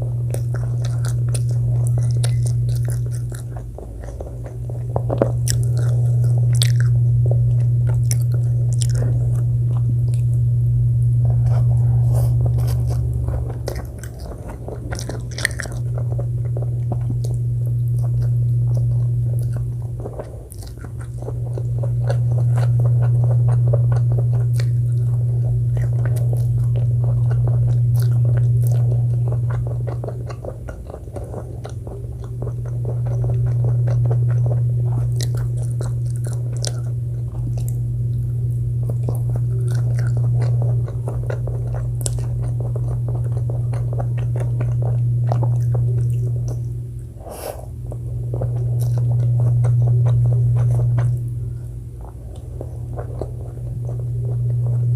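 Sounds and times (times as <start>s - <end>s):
chewing and crunching: 0.0s - 54.9s
loud low hum: 0.0s - 54.9s
wet mouth clicks: 0.4s - 10.3s, 11.4s - 38.3s, 38.9s - 54.9s.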